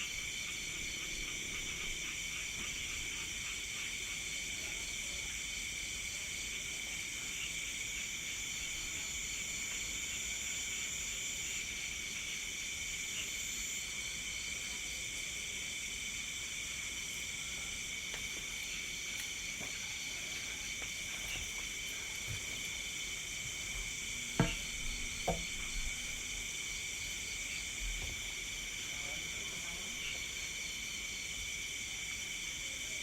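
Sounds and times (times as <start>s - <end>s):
crickets and insects trilling: 0.0s - 33.0s
short knocks: 24.3s - 25.8s.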